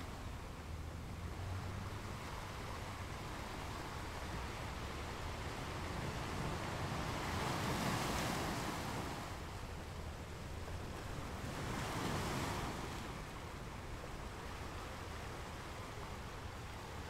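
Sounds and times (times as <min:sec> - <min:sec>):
ocean waves breaking: 0:01.6 - 0:13.8.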